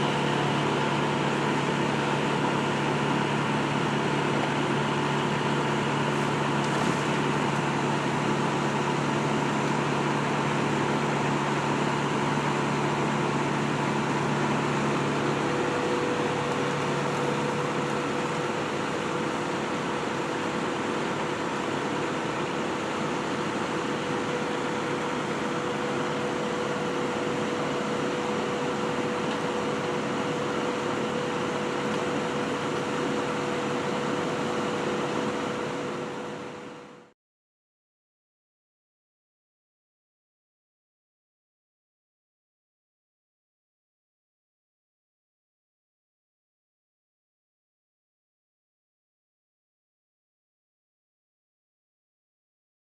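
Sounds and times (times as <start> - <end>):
engine running: 0.0 - 37.1.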